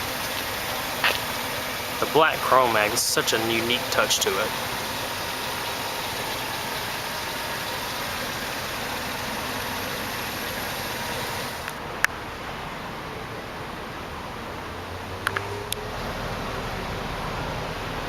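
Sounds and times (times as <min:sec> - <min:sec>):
even hiss: 0:00.0 - 0:11.7
car engine idling: 0:00.0 - 0:18.0.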